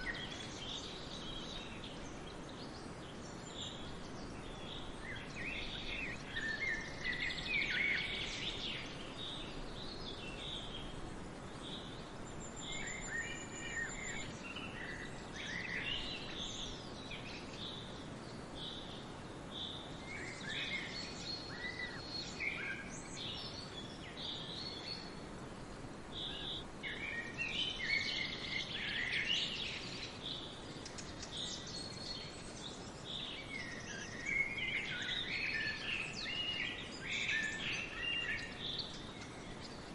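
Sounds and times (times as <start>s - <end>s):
background hiss: 0.0s - 39.9s
songbirds chirping: 0.0s - 39.9s.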